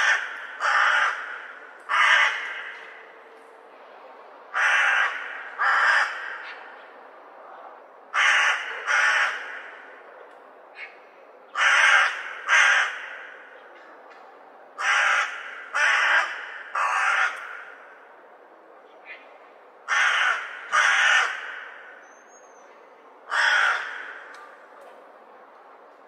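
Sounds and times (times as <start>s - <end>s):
crows cawing: 0.0s - 3.0s, 4.5s - 6.8s, 8.1s - 10.0s, 10.8s - 13.5s, 14.8s - 18.0s, 19.9s - 22.0s, 23.3s - 24.4s.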